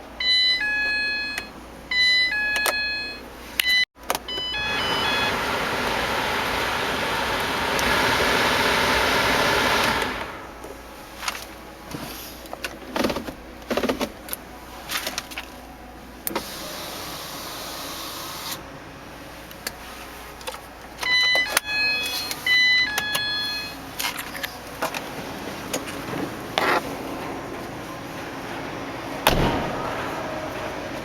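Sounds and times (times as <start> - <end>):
short electronic beeps: 21.1 - 23.8.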